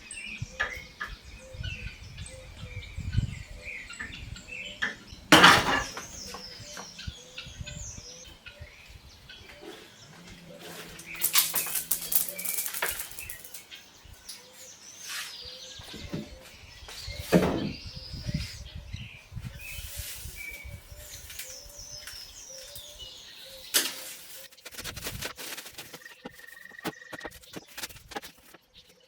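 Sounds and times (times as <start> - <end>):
small birds chirping: 0.0 - 29.0
close rustling: 9.6 - 13.7, 23.7 - 28.7.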